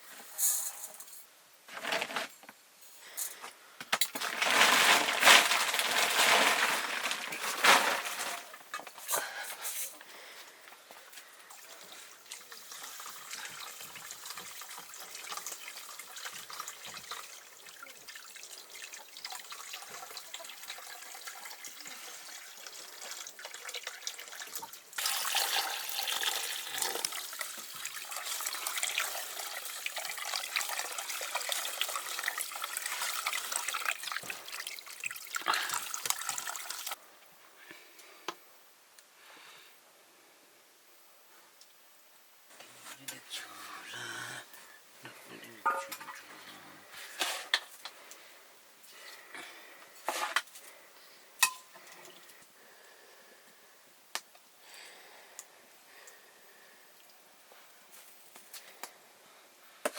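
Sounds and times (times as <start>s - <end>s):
water running and splashing: 11.5s - 37.0s.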